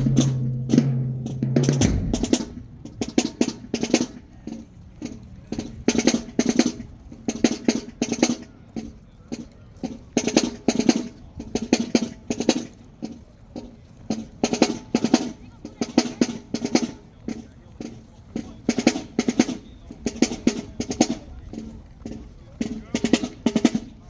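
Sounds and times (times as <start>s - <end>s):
snare and bass drums playing: 0.0s - 8.5s, 9.3s - 12.7s, 18.4s - 24.0s.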